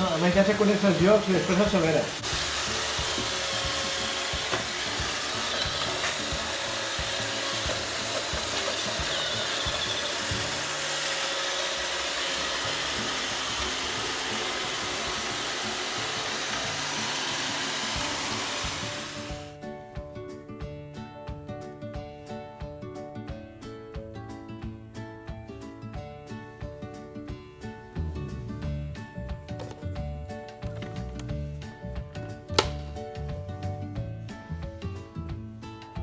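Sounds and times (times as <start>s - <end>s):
music with plucked notes: 0.0s - 10.8s, 12.4s - 36.0s
robot vacuum whirring: 0.6s - 19.5s.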